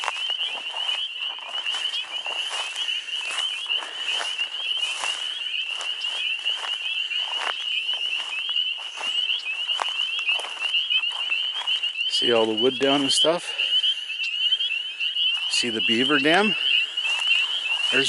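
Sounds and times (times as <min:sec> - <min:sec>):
frogs chorus calling: 0:00.0 - 0:18.0.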